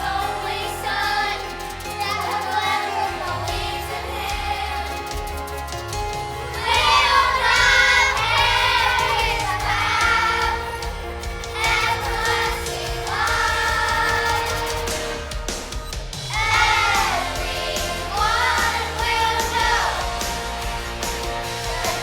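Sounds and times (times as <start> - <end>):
children singing: 0.0 - 22.0
instrumental backing music: 0.0 - 22.0.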